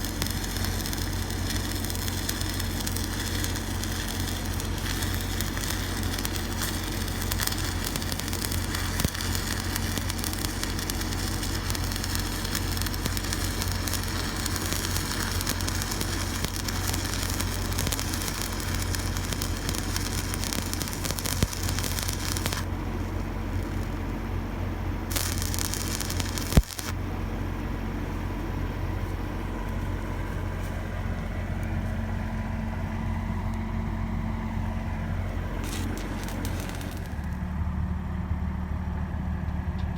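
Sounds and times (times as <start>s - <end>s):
arc welding crackling and hissing: 0.0s - 27.1s, 33.1s - 37.6s
low engine hum: 0.0s - 39.9s.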